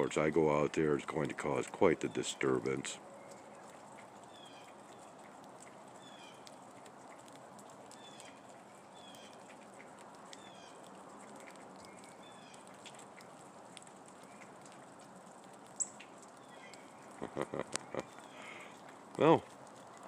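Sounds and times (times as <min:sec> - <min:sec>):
faint steady outdoor hiss: 0:00.0 - 0:20.0
small bird calling: 0:03.3 - 0:05.3, 0:06.0 - 0:06.5, 0:07.9 - 0:12.9, 0:15.8 - 0:19.4.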